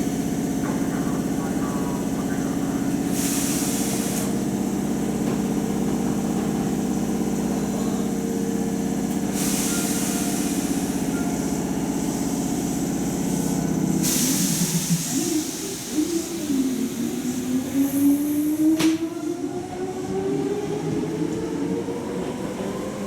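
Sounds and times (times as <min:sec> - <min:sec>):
electric train humming: 0:00.0 - 0:23.0
air releasing hiss: 0:09.3 - 0:10.9, 0:14.0 - 0:16.4.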